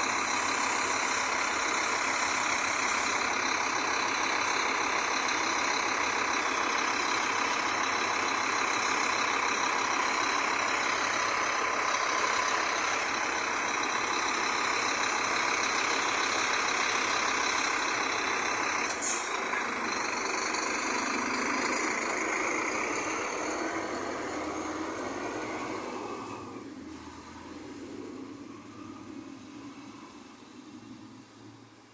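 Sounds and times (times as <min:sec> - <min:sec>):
bus diesel engine running: 0:00.0 - 0:31.9
sharp air hiss: 0:18.9 - 0:19.4.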